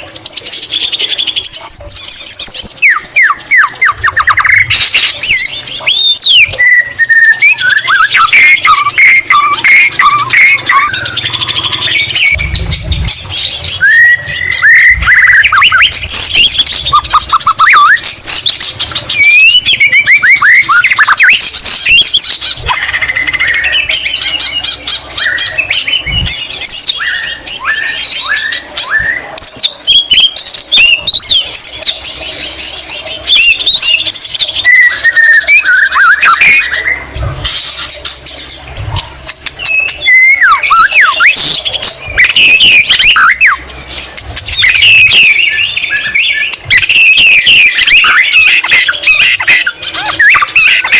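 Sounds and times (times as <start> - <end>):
bird singing whistles and trills: 0.0 - 50.9
dull low thumps: 12.4 - 15.1.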